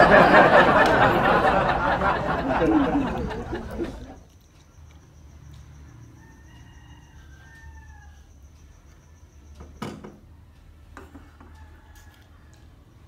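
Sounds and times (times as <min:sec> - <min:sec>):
rooster crowing: 0:06.2 - 0:08.5, 0:11.2 - 0:12.9.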